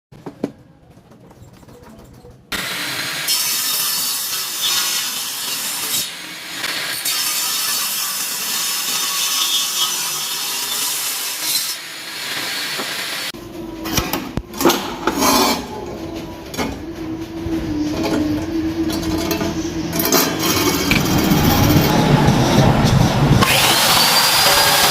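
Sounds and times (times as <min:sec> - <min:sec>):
circular saw cutting: 0:02.5 - 0:13.4, 0:19.6 - 0:24.9
scraping: 0:14.6 - 0:23.8
low motor hum: 0:15.7 - 0:24.6.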